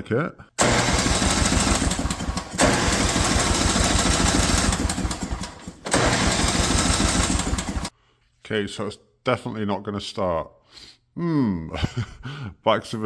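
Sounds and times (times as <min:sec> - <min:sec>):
small petrol engine cranking: 0:00.6 - 0:07.9.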